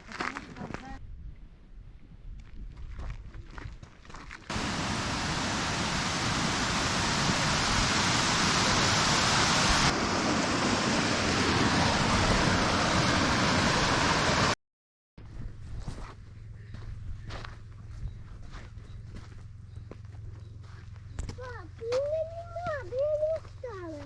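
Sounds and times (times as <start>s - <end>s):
waterfall rushing: 4.5s - 14.6s.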